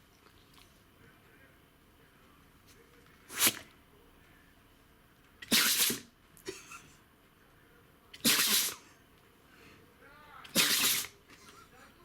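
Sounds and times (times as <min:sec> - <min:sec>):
faint small sounds: 0:00.0 - 0:05.4
dog sneezing: 0:03.3 - 0:03.7, 0:05.4 - 0:06.6, 0:08.1 - 0:08.9, 0:10.4 - 0:11.2.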